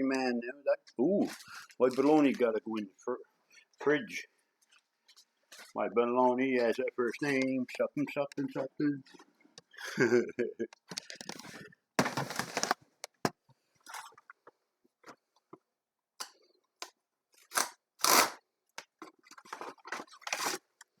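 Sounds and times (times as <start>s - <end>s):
clicks and light knocks: 10.7s - 15.6s
food packaging crinkling: 11.0s - 13.3s, 19.3s - 20.8s.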